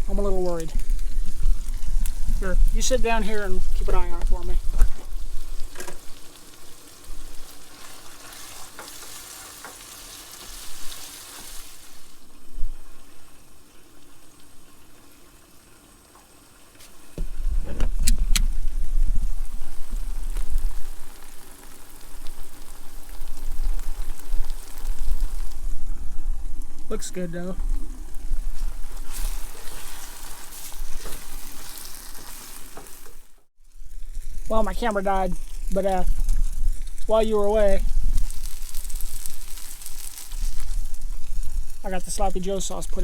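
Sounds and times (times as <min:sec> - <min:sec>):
sausage sizzling in a pan: 0:00.0 - 0:43.0
wind buffeting microphone: 0:17.2 - 0:21.2.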